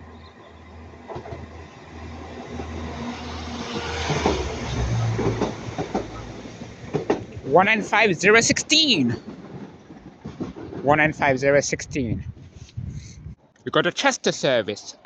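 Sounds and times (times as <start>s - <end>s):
wheels clacking over rail joints: 0.0s - 11.3s
train engine hum: 0.0s - 15.0s.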